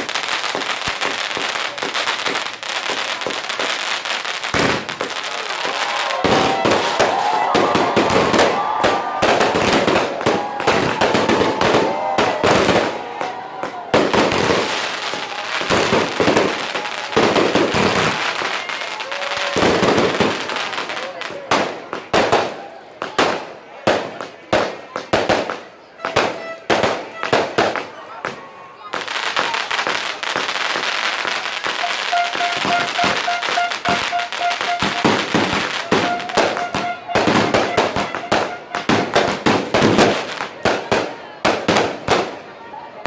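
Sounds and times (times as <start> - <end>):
fireworks cracks and bangs: 0.0 - 43.0
people calling out: 5.2 - 15.7, 31.5 - 39.5.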